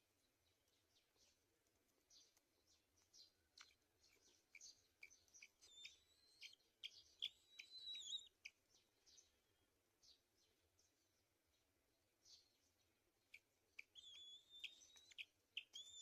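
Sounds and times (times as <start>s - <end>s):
bird chirps: 2.1s - 11.2s, 12.2s - 16.0s
bird whistle: 5.7s - 6.6s, 7.2s - 8.3s, 13.8s - 16.0s.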